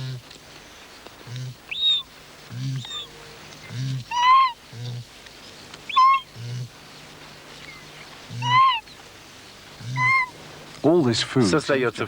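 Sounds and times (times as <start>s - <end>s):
higher-pitched arching bird call: 2.8s - 3.4s, 4.1s - 4.6s, 5.9s - 6.4s, 7.7s - 9.0s, 9.8s - 10.4s.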